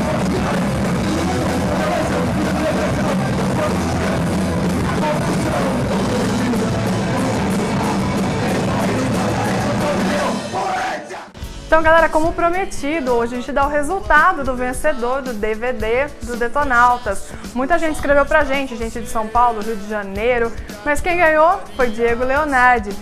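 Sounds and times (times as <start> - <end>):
punk rock band playing: 0.0 - 13.4.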